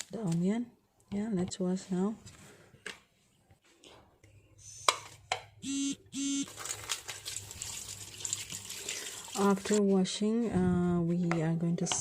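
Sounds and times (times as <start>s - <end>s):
short electronic beeps: 5.6s - 6.5s
running water: 6.9s - 9.8s.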